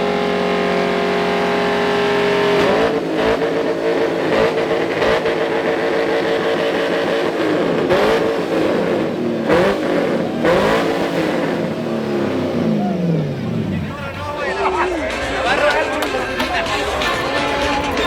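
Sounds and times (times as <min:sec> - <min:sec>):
truck engine revving hard: 0:00.0 - 0:18.0.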